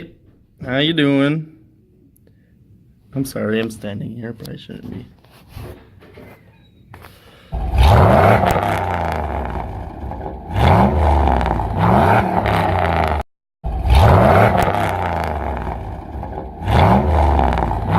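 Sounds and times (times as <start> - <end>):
vehicle engine revving: 7.6 - 17.9.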